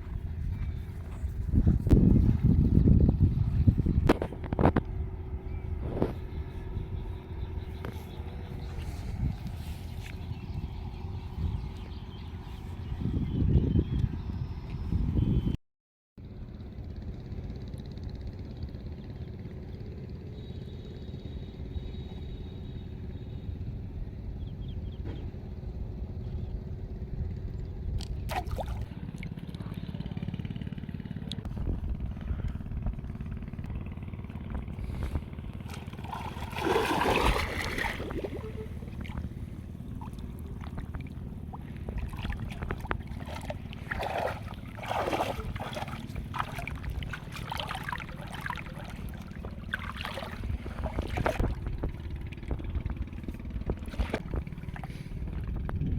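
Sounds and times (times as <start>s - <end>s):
steady low rumble: 0.0s - 15.1s, 21.0s - 55.9s
water splashing and trickling: 28.2s - 29.4s, 35.5s - 55.1s.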